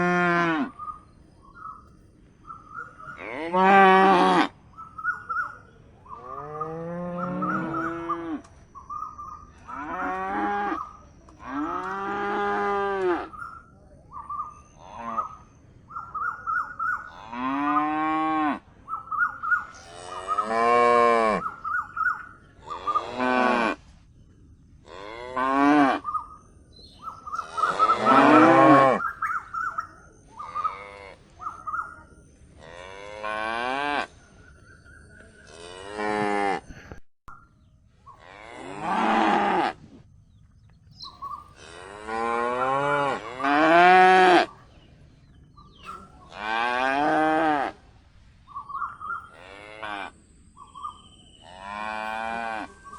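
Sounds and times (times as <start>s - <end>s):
calves mooing: 6.3s - 8.5s, 27.4s - 29.0s.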